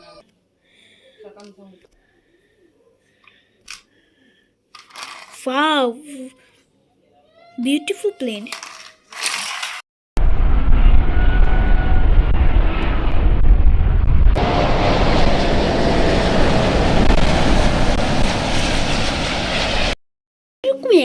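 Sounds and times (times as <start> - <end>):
airplane engine noise: 10.2 - 20.0.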